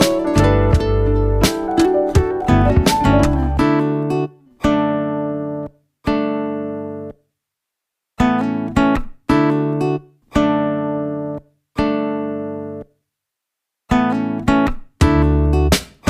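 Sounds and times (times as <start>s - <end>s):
acoustic guitar strumming: 0.0s - 7.1s, 13.9s - 15.8s.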